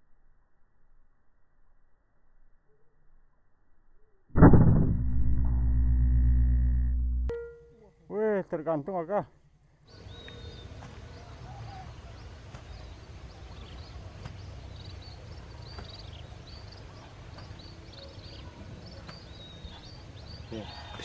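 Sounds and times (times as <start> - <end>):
low outdoor rumble: 4.4 - 7.9
small birds chirping: 9.9 - 21.0.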